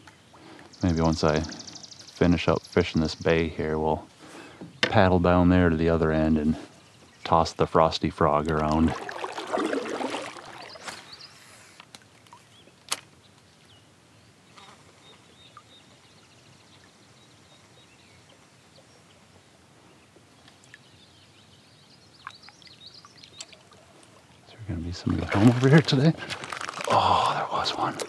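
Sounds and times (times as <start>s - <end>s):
faint bird calls: 0.0s - 3.4s.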